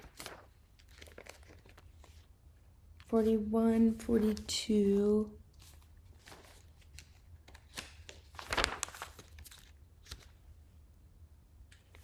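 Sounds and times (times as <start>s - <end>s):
paper rustling: 0.0s - 2.3s, 5.5s - 10.4s.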